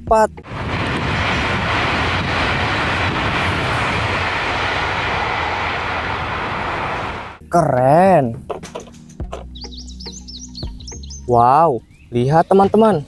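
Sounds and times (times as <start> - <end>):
train rushing past: 0.4 - 7.4.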